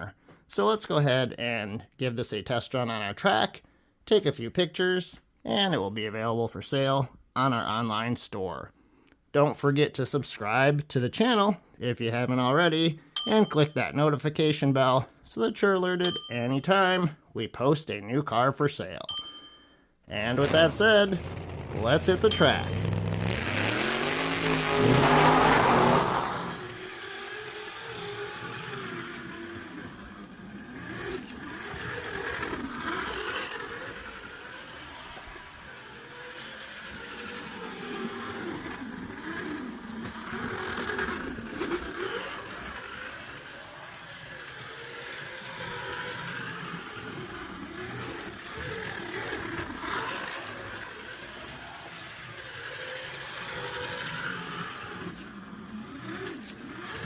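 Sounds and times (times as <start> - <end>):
slot car motor whining: 20.1 - 57.0.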